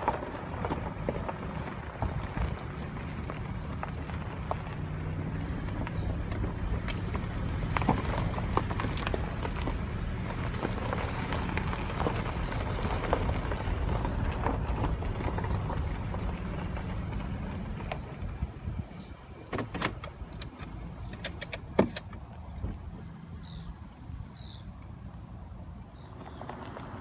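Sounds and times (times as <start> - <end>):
vehicle engine rumbling: 0.0 - 27.0.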